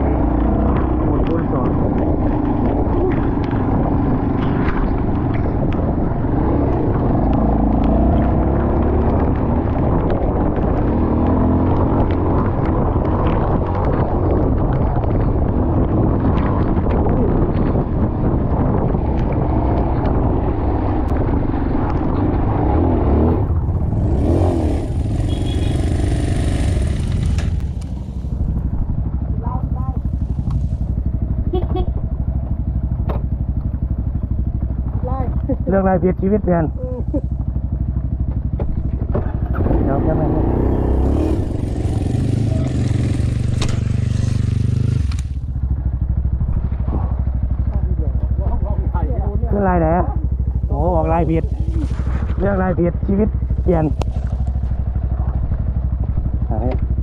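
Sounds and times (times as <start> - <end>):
motorcycle engine running: 0.0 - 57.0
dirt bike engine revving: 19.9 - 27.6, 38.9 - 45.4.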